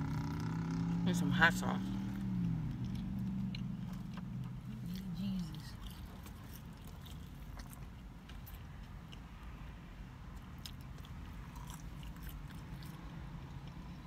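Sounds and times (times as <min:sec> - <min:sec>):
person chewing french fries: 0:02.4 - 0:14.0.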